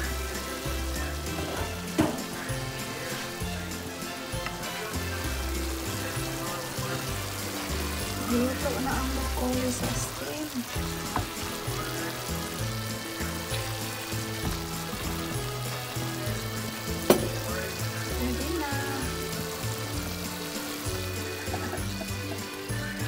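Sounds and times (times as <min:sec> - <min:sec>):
vegetables and meat sizzling in wok: 0:00.0 - 0:23.0
utensil clacking against pan: 0:04.3 - 0:22.6.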